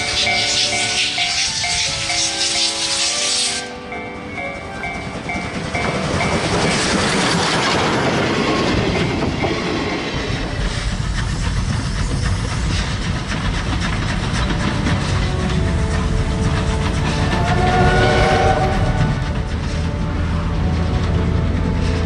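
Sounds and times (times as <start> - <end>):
background music: 0.0 - 9.5, 14.3 - 22.0
steam locomotive running: 0.0 - 22.0
train clattering on rails: 0.0 - 22.0.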